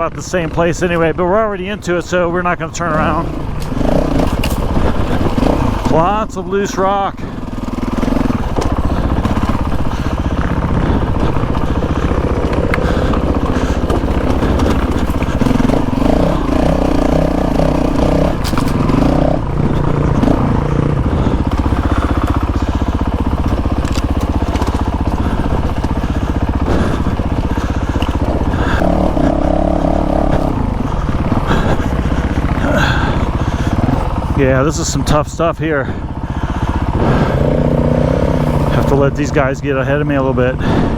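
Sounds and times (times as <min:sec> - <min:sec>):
motorcycle engine revving: 0:00.0 - 0:40.9
stones crunching under tyres: 0:03.0 - 0:06.1, 0:07.3 - 0:34.4.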